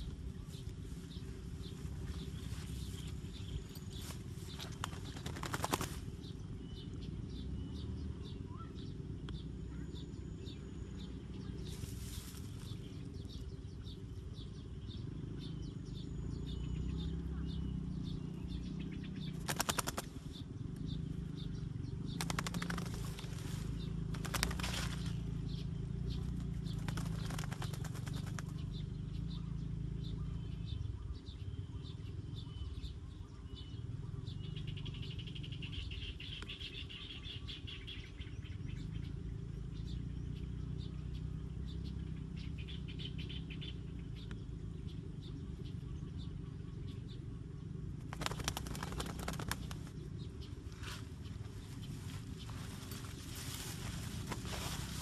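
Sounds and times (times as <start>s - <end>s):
steady low hum: 0.0s - 55.0s
bird flapping wings: 3.9s - 6.2s, 19.3s - 20.2s, 22.1s - 25.3s, 26.1s - 28.7s, 48.0s - 50.0s.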